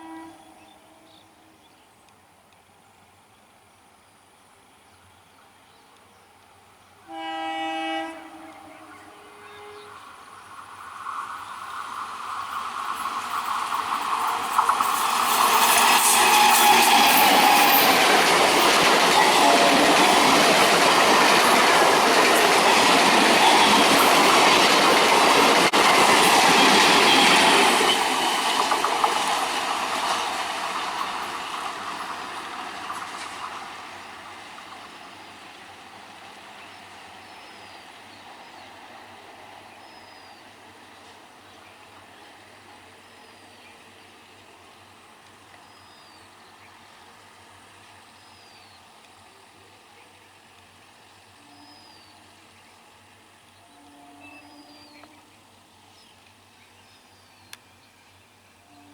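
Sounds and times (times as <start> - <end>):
train passing at speed: 0.0 - 1.6, 6.6 - 58.9
wheels clattering over rail joints: 11.9 - 33.7.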